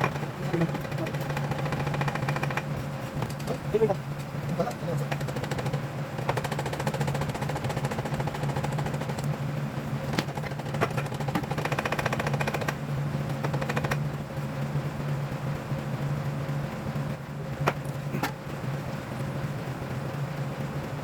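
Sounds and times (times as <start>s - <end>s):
fast rattling clatter: 0.0s - 9.4s, 10.0s - 14.2s
low machine hum: 0.0s - 21.0s.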